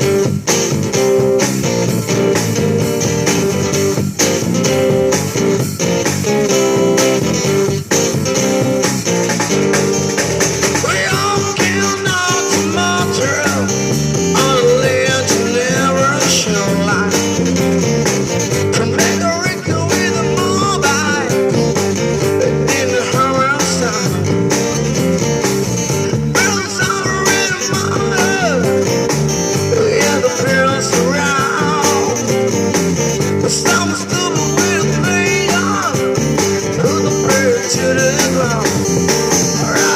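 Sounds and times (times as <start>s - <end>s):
guitars strumming: 0.0s - 39.9s
live band playing: 0.0s - 39.9s
person singing: 10.7s - 17.4s, 18.6s - 24.5s, 26.3s - 28.8s, 29.6s - 32.4s, 33.4s - 39.9s.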